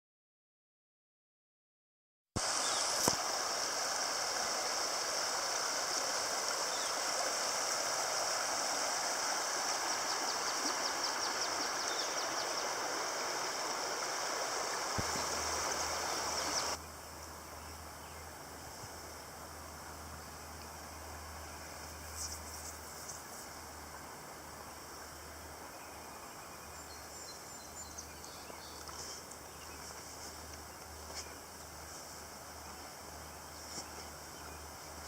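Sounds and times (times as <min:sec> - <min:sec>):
river water rushing: 0:02.4 - 0:16.8.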